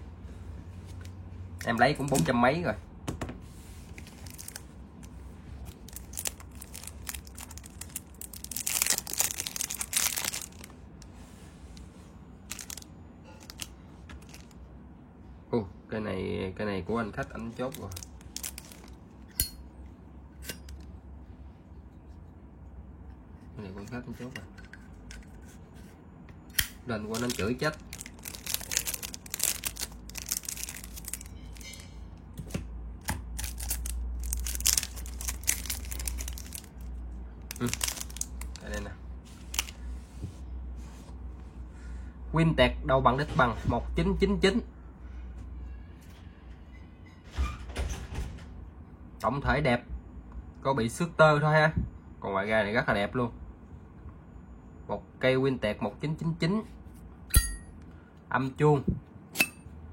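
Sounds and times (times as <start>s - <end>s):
low steady hum: 0.0s - 47.4s, 48.4s - 59.9s
packaging crinkling and rustling: 3.9s - 11.0s, 11.8s - 14.6s, 17.3s - 19.0s, 27.0s - 31.8s, 33.4s - 39.8s.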